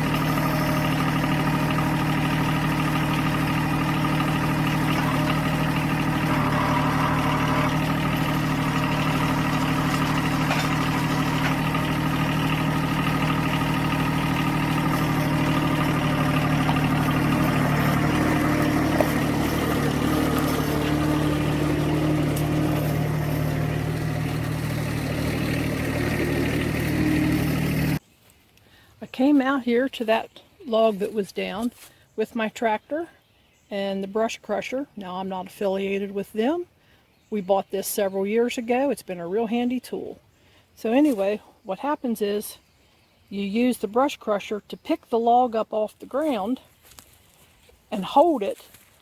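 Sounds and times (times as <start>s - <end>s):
tractor diesel engine running: 0.0s - 28.0s, 43.4s - 49.0s.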